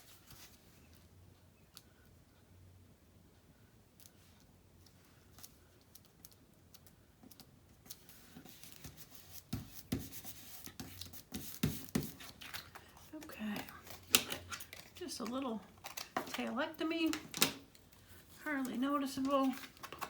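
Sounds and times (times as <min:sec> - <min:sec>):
paper rustling: 0:07.8 - 0:20.0.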